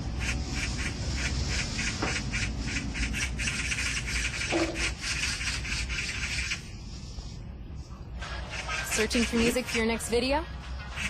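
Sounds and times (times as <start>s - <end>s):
rapid repeated animal calls: 0.0s - 6.7s, 8.2s - 10.1s.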